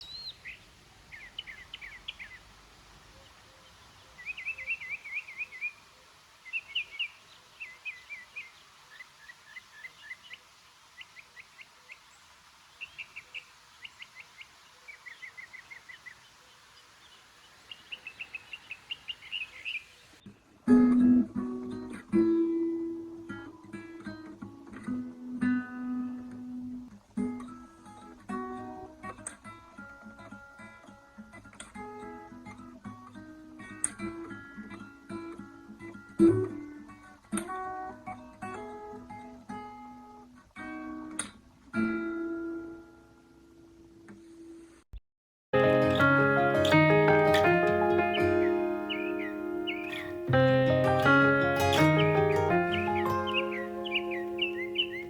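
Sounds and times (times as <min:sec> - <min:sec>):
small birds chirping: 0:00.0 - 0:20.3, 0:45.7 - 0:55.0
faint steady hiss: 0:00.0 - 0:44.9, 0:45.6 - 0:55.0
acoustic guitar music: 0:20.7 - 0:28.9, 0:45.6 - 0:55.0.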